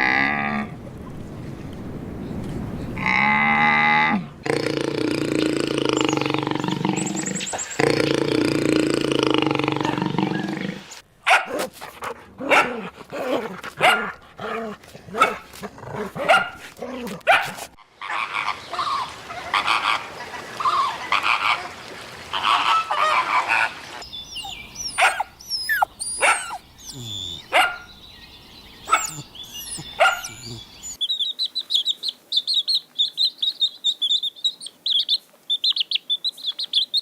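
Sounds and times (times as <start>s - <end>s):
dog barking and yelping: 11.2s - 18.4s, 24.4s - 27.9s, 28.8s - 31.0s
long drawn-out animal call: 17.8s - 28.0s, 28.8s - 31.0s.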